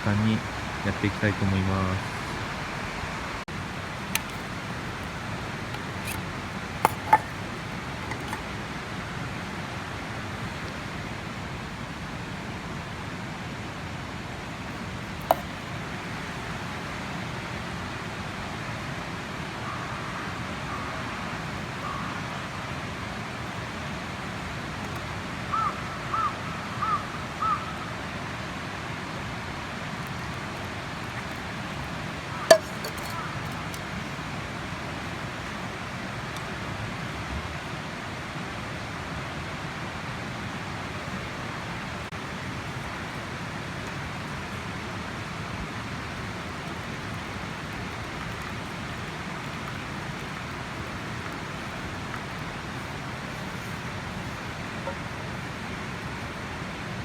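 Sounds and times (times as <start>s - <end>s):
sharp clicks and clinks: 6.8s - 7.5s, 8.1s - 8.4s, 32.5s - 33.8s
crow cawing: 25.5s - 27.7s.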